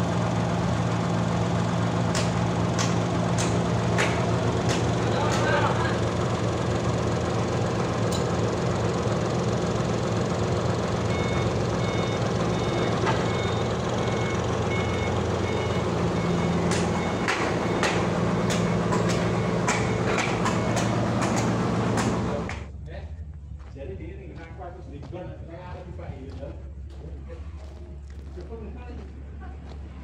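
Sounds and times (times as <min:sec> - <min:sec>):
sawmill machinery drone: 0:00.0 - 0:22.7
sharp clicks and knocks: 0:02.1 - 0:05.5, 0:16.7 - 0:22.7.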